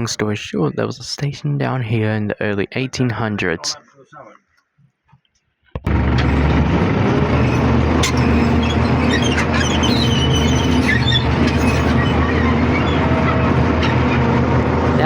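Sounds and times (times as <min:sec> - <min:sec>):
carriage rumbling on track: 0:05.9 - 0:15.0
diesel locomotive running: 0:05.9 - 0:15.0
wheels squealing: 0:05.9 - 0:15.0.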